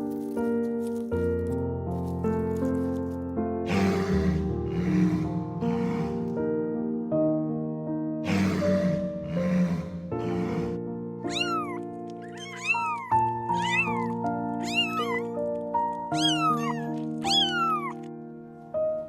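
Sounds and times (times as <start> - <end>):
background music: 0.0 - 19.0
breathy bursts: 3.7 - 6.4, 8.3 - 10.8
cat meowing: 10.2 - 18.1.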